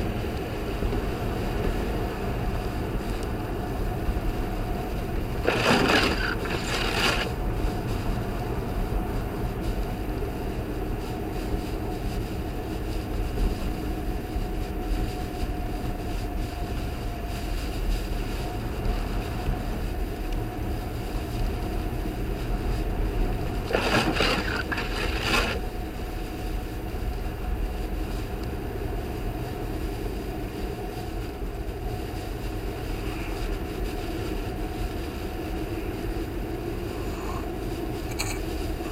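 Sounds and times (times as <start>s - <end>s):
car road and engine noise: 0.0s - 38.9s
hissing rush: 5.3s - 7.3s, 23.4s - 25.6s.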